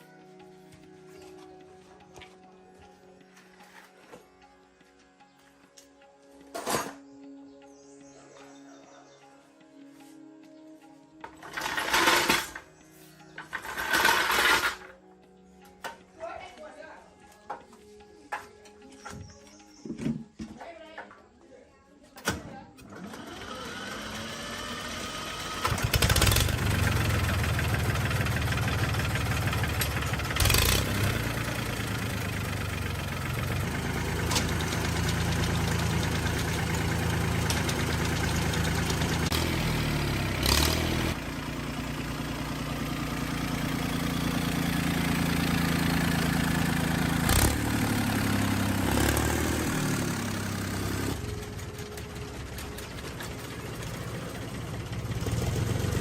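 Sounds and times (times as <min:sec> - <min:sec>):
mini excavator engine running: 0:11.3 - 0:15.0, 0:22.8 - 0:56.0.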